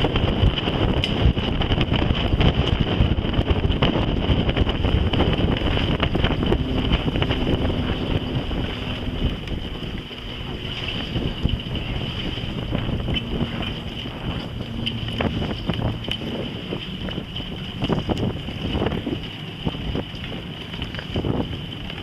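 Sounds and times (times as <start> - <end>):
wind buffeting microphone: 0.0 - 22.0
small clicks and rattles: 9.3 - 22.0.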